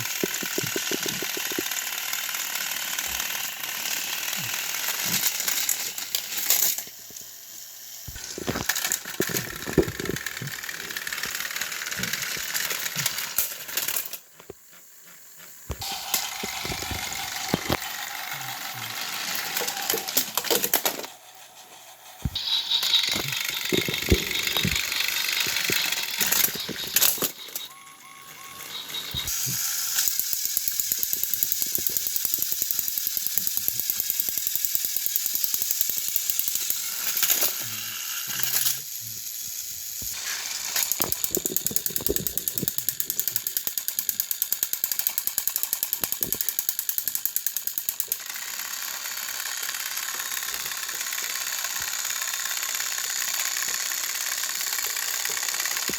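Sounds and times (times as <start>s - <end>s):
rapid clicking: 0.0s - 6.4s, 22.2s - 27.7s, 40.8s - 55.9s
toy train motors rattling: 0.0s - 55.9s.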